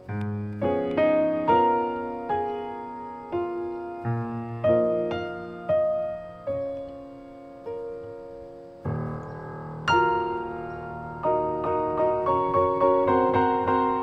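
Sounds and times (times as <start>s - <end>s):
slow gentle piano: 0.0s - 14.0s.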